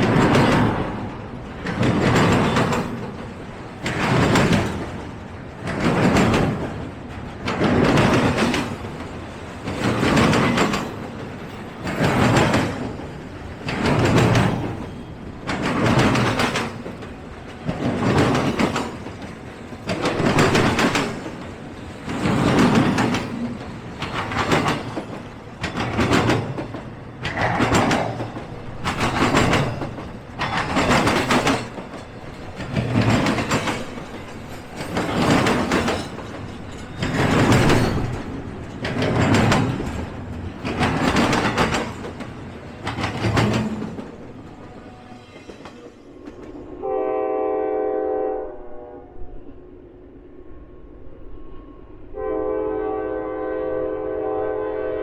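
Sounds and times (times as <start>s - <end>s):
freight train cars rolling: 0.0s - 55.0s.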